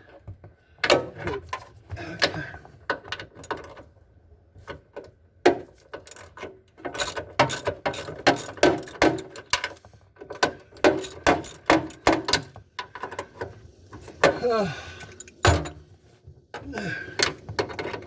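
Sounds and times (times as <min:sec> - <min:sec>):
hand tools clicking: 0:06.1 - 0:06.3, 0:07.0 - 0:09.3, 0:11.0 - 0:12.1.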